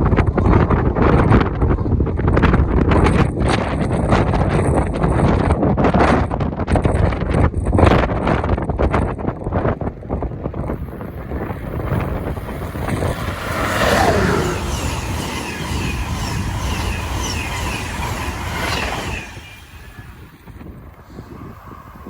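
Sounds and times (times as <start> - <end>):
train wheels rushing on rail: 6.8 - 22.0.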